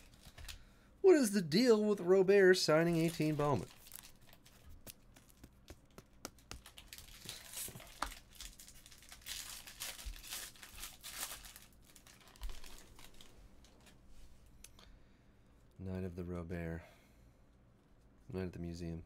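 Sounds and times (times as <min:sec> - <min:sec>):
foil wrappers crinkling and tearing: 0:02.7 - 0:14.0
cards clicking and tapping: 0:04.7 - 0:08.1.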